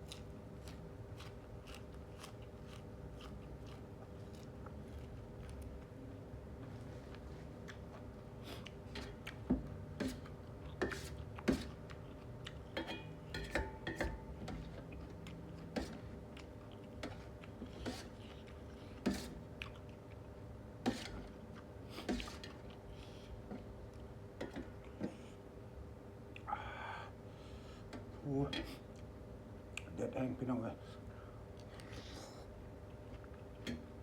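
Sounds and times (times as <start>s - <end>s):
person chewing: 0.0s - 9.5s, 10.2s - 12.8s, 14.7s - 20.4s, 31.6s - 33.6s
faint steady hum: 0.0s - 34.0s.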